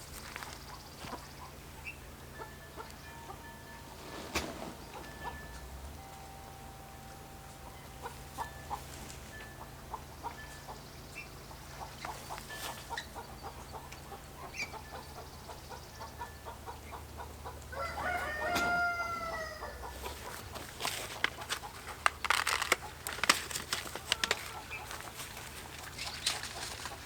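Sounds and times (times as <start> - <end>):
rooster crowing: 17.7 - 20.3.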